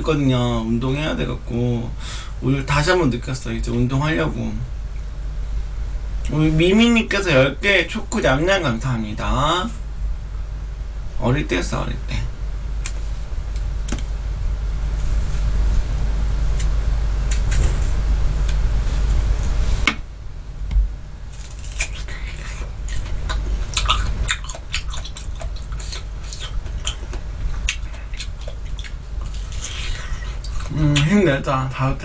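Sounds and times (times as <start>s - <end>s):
steady low hum: 0.0s - 32.0s
crunchy biting and chewing: 21.3s - 31.1s.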